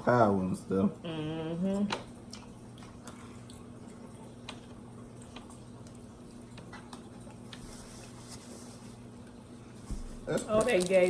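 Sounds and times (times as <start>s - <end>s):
chewing mouth sounds: 2.2s - 7.5s.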